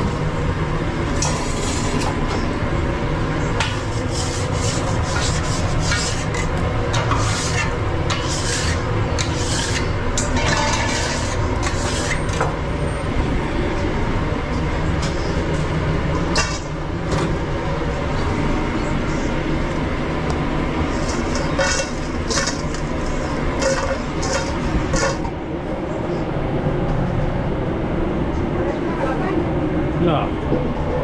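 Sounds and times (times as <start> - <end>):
kitchen equipment rumble: 0.0 - 26.2
scraping rubbing strokes: 3.9 - 6.4, 7.0 - 9.9.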